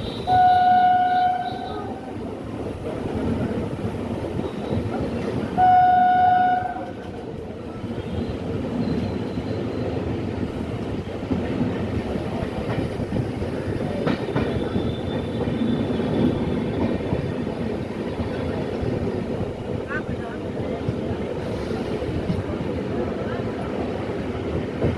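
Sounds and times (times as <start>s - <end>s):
train horn blast: 0.0s - 2.1s, 5.6s - 7.2s
train rumbling on rails: 0.0s - 24.9s.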